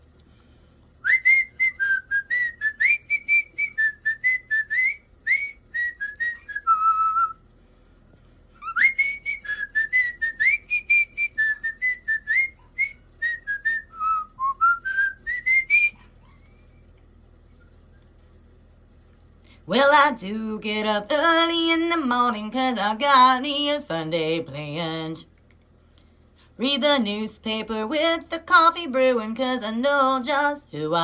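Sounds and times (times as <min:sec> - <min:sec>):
person whistling a tune: 0:01.1 - 0:07.4, 0:08.6 - 0:16.0.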